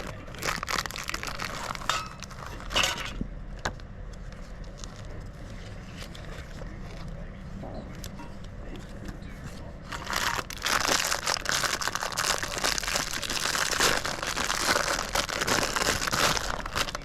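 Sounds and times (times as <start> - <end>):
packaging crinkling: 0.0 - 3.0, 9.9 - 17.0.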